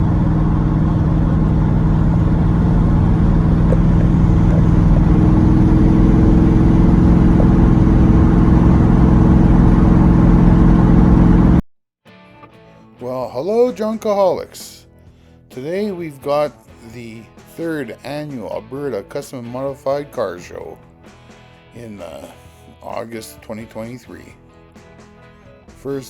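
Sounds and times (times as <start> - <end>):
car engine running: 0.0 - 11.6.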